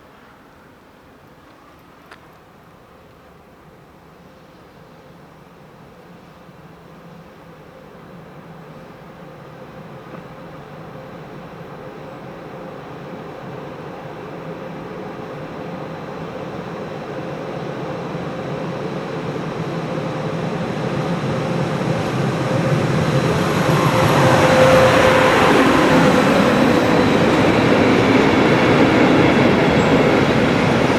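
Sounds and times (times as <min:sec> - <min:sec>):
train wheels rolling on rail: 0:18.9 - 0:30.9.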